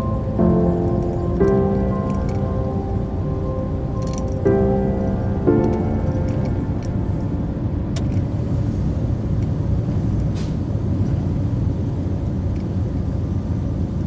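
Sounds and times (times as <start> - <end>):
truck driving on road: 0.0 - 14.0
brief hiss: 10.3 - 10.7.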